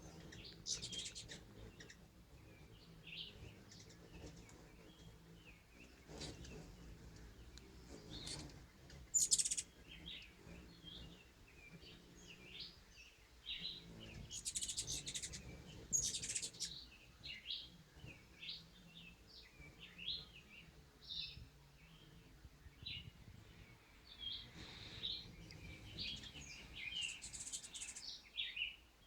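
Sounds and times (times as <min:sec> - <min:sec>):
birds chirping: 0:00.0 - 0:28.8
rapid bird chattering: 0:09.2 - 0:09.7, 0:14.3 - 0:16.7, 0:26.0 - 0:28.0.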